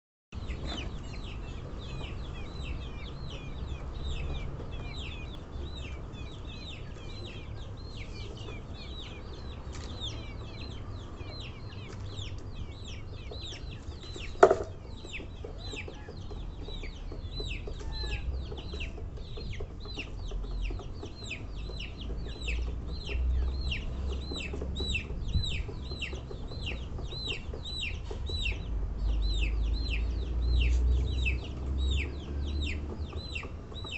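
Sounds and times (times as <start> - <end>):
chicks peeping: 0.4 - 33.9
sharp knock: 14.4 - 14.8.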